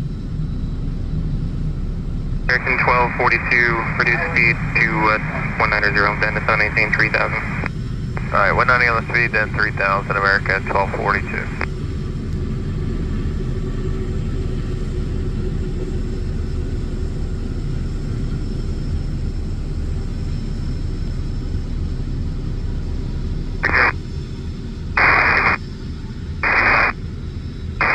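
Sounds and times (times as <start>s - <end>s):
jet engines rumbling: 0.0s - 27.9s
radio scanner hiss: 2.5s - 11.7s, 23.6s - 24.0s, 25.0s - 25.6s, 26.4s - 27.0s.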